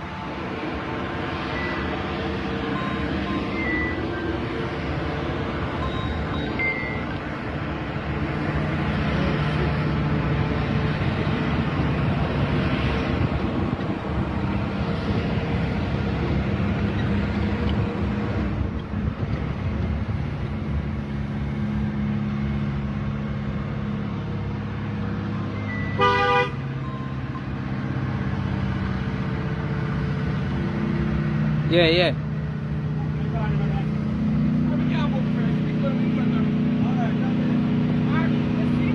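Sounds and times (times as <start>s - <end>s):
truck diesel engine running: 0.0s - 38.9s
truck horn toot: 25.8s - 26.8s.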